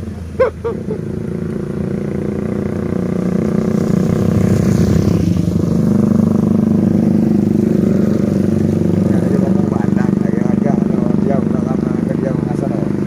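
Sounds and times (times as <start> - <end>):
diesel truck engine labouring: 0.0 - 3.7.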